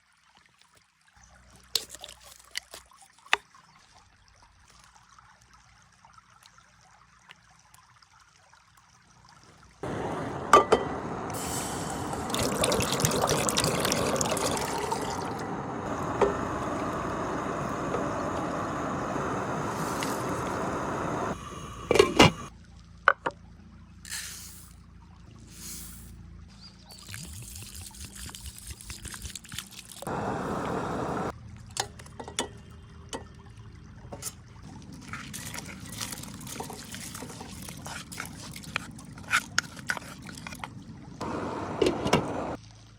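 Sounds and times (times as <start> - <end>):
liquid pouring: 10.5 - 22.0, 26.9 - 30.2, 34.6 - 40.7.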